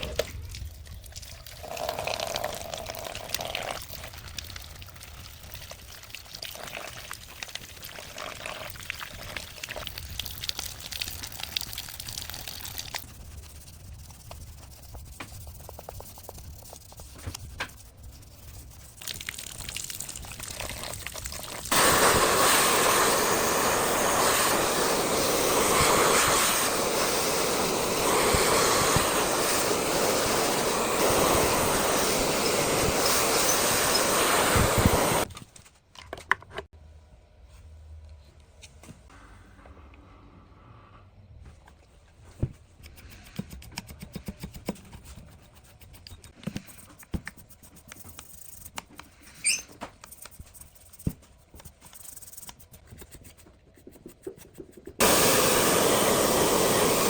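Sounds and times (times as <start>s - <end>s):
rush of spraying water: 19.0s - 35.3s, 55.0s - 57.0s.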